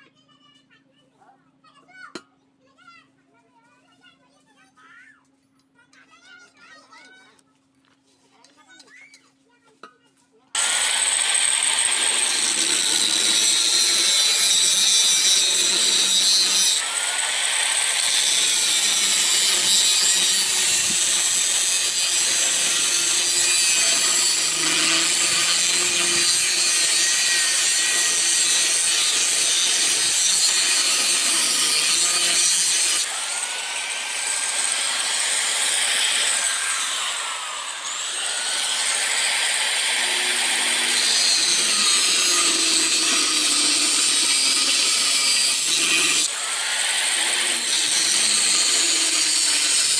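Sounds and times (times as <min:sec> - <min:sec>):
power tool grinding metal: 0:10.6 - 0:49.9.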